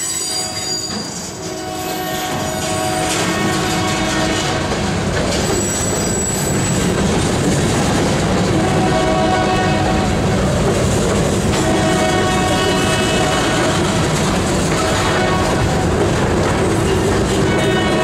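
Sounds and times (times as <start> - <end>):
high wheel squeal: 0.0 - 2.9, 5.4 - 6.9
train wheels rumbling on rail: 0.0 - 18.0
locomotive horn blasts: 1.5 - 4.7, 8.6 - 10.2, 11.6 - 14.0, 14.7 - 15.7, 17.4 - 18.0.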